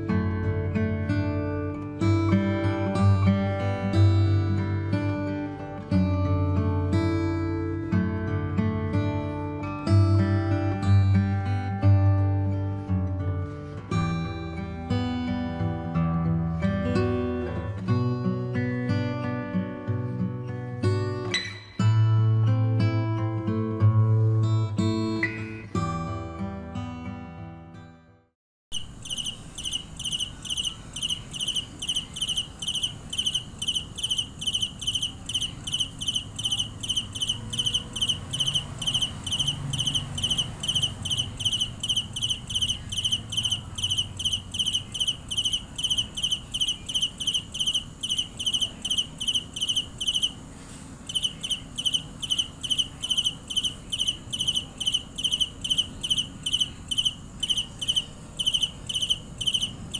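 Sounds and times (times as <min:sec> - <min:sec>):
cricket chirping: 0:28.7 - 0:59.9.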